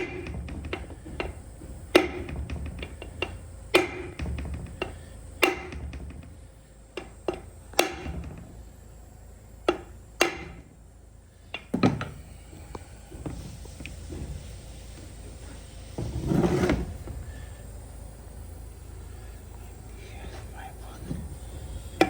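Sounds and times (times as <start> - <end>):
sharp metal knocks: 0.0 - 6.3.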